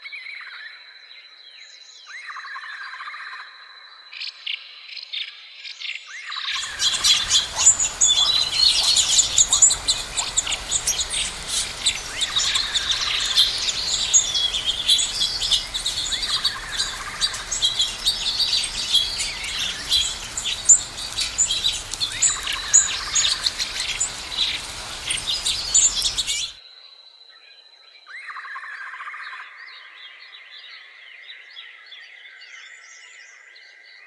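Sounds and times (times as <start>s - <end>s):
small birds chirping and singing: 6.5s - 26.6s.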